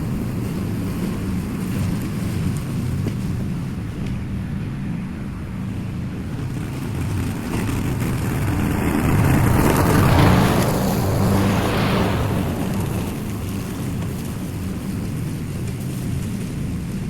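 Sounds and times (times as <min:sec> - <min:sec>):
lawn mower engine cutting grass: 0:05.7 - 0:17.0.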